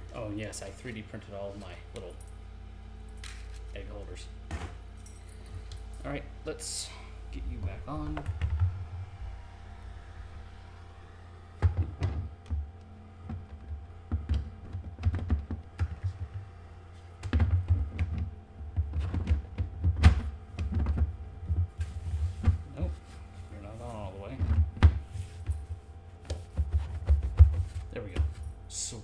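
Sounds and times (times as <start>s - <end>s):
faint steady hum: 0.0s - 29.0s
hard plastic knocks and clunks: 13.2s - 16.5s, 17.2s - 22.7s.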